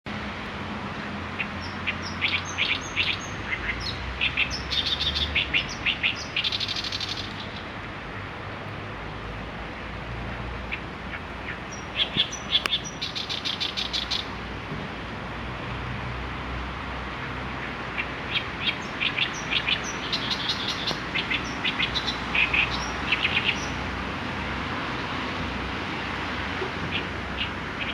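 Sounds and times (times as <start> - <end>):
songbird singing with trills: 1.4 - 7.6, 10.6 - 14.4, 17.6 - 23.8, 26.9 - 27.9.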